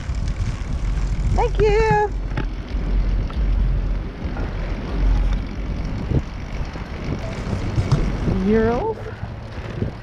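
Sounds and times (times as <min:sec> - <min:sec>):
street and riding noise: 0:00.0 - 0:10.0
wind rumbling on microphone: 0:00.0 - 0:10.0.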